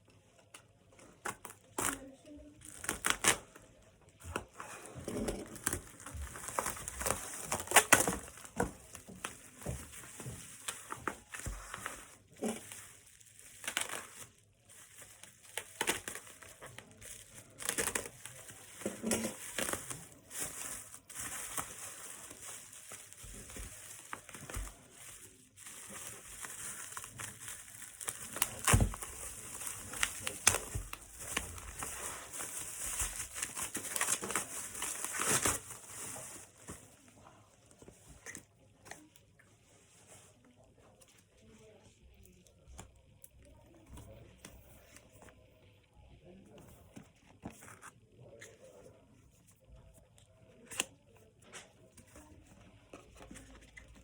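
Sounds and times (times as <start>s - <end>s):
packaging crinkling: 5.2s - 36.9s
packaging tearing: 10.7s - 36.4s.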